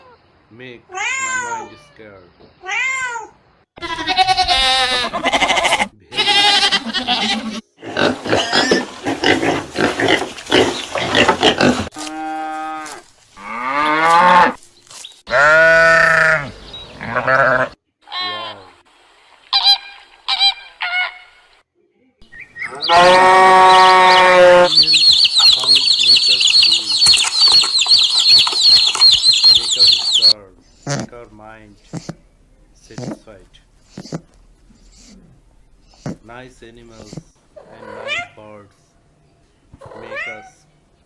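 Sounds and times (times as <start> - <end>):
farm animal calls: 3.8 - 14.6, 15.3 - 18.7, 22.3 - 38.6, 39.7 - 40.7.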